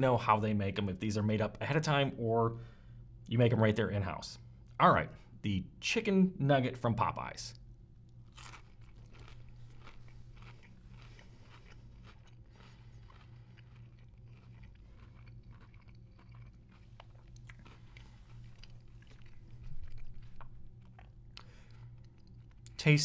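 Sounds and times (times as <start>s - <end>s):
crunchy fried breading chewing: 8.0s - 22.8s.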